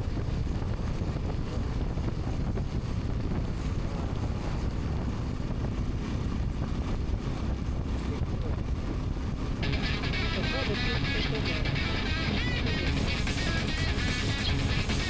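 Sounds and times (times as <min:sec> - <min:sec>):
road noise: 0:00.0 - 0:15.0
wind buffeting microphone: 0:00.0 - 0:15.0
motorcycle engine: 0:09.6 - 0:15.0.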